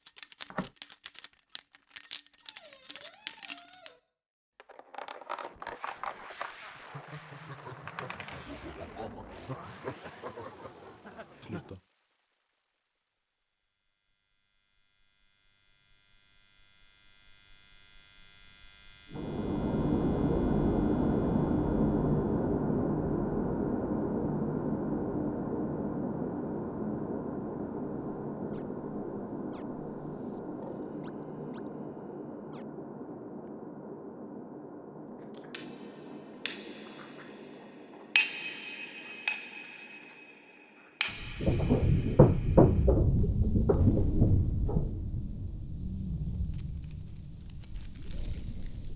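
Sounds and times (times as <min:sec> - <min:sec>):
electronic drone of humming tones: 0:13.8 - 0:46.5
dense grainy low layer: 0:19.1 - 0:48.9.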